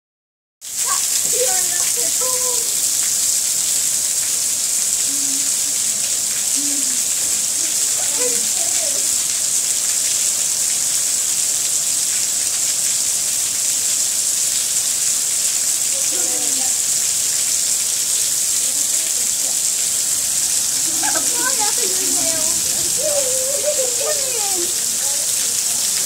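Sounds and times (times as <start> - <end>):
heavy rain pouring: 0.6 - 26.0
brief voice sounds: 5.1 - 5.6.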